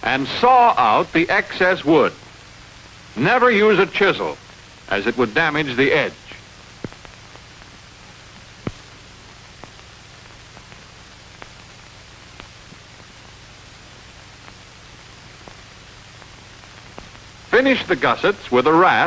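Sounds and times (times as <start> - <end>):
film soundtrack hiss: 0.0 - 19.0
faint clicks and pops: 6.7 - 17.4.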